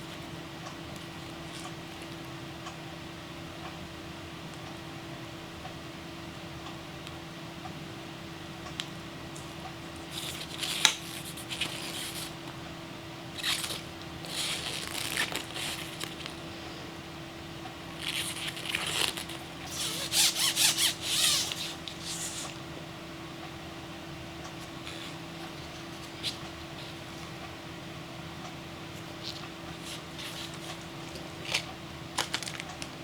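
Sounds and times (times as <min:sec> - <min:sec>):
faint steady hum: 0:00.0 - 0:33.0
packaging crinkling: 0:13.4 - 0:16.4, 0:29.0 - 0:33.0.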